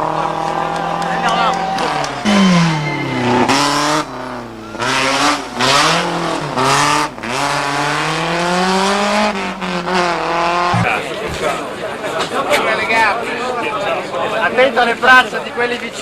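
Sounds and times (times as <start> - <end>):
rally car engine accelerating: 0.0 - 12.3.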